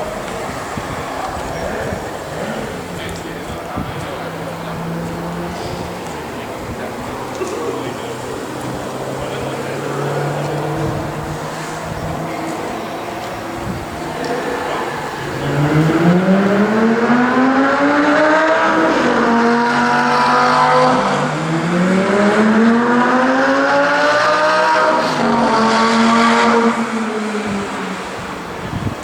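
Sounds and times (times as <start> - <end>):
sports car accelerating hard: 0.0 - 29.0.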